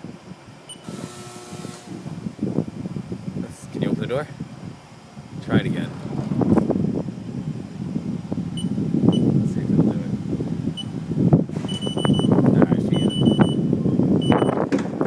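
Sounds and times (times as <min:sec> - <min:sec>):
machine shop rumble: 0:00.0 - 0:15.0
high-pitched electronic beeps: 0:11.7 - 0:12.3.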